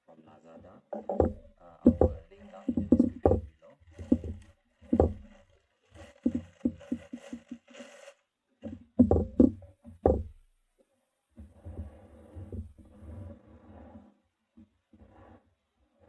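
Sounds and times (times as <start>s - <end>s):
quick taps and scrapes: 0.6s - 10.2s
heavy knocks of handling: 1.0s - 5.3s.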